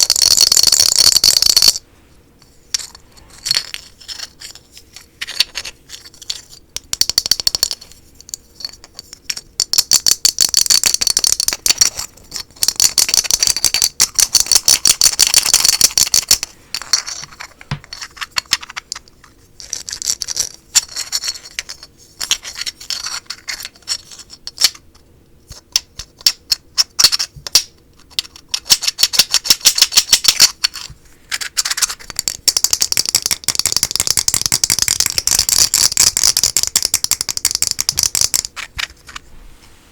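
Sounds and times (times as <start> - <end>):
fast tapping on hard objects: 31.6 - 38.9.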